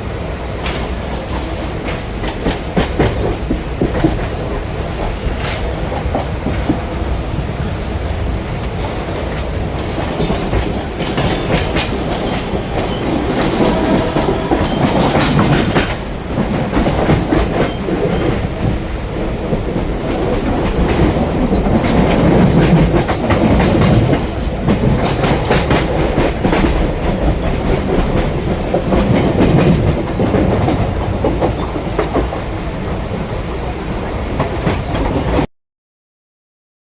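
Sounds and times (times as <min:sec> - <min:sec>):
electric train rumbling: 0:00.0 - 0:35.5
wheels clattering over rail joints: 0:08.7 - 0:18.8.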